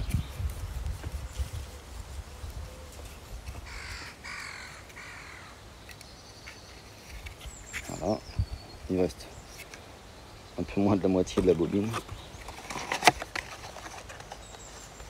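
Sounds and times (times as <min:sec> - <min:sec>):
bird calling: 0:01.3 - 0:15.0.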